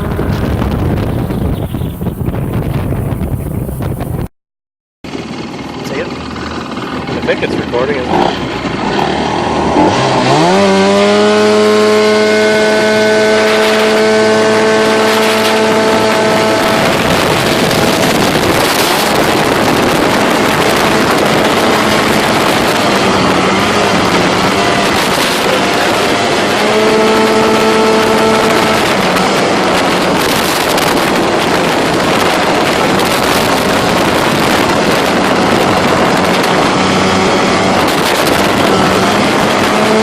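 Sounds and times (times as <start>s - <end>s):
boat engine revving: 5.1s - 40.0s
wind and water rushing: 8.1s - 40.0s.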